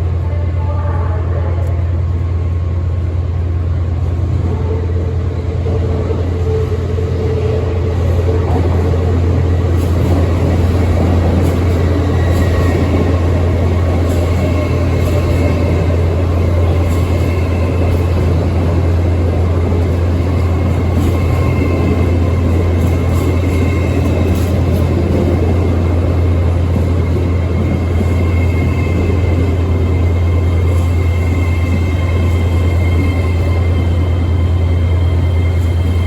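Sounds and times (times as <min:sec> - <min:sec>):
train low drone: 0:00.0 - 0:36.0.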